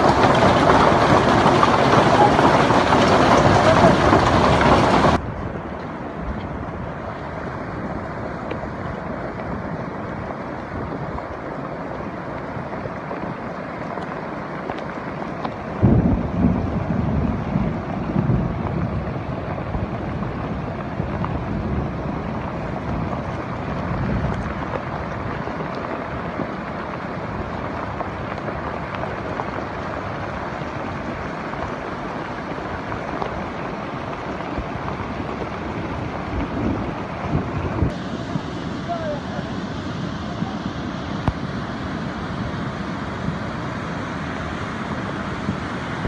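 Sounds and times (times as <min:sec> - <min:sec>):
heavy rain: 0:00.0 - 0:46.0
wind buffeting microphone: 0:00.0 - 0:46.0.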